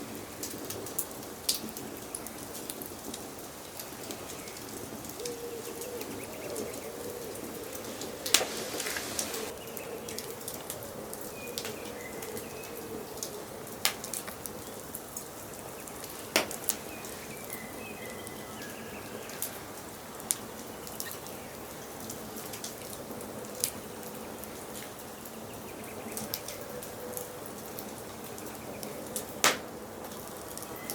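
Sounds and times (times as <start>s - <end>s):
wood fire crackling: 0.0s - 30.9s
sharp pops of fire: 8.2s - 9.5s, 16.3s - 16.9s, 29.4s - 29.7s.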